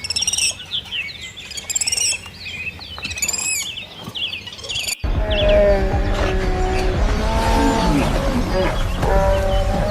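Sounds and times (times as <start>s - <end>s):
pigs squealing: 5.2s - 9.9s.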